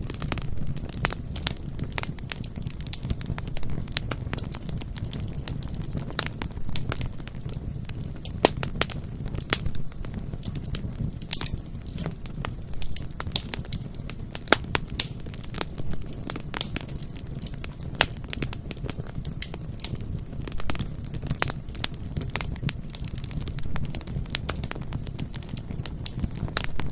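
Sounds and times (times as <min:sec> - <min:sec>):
fire crackling and popping: 0:00.0 - 0:26.9
flames rumbling: 0:00.0 - 0:26.9.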